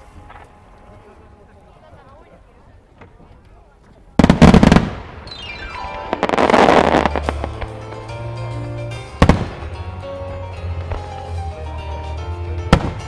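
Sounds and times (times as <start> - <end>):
fireworks bangs: 0.0 - 13.0
fireworks crackling: 0.0 - 13.0
falling whistling tone: 5.2 - 6.6
show music with bass: 6.3 - 13.0.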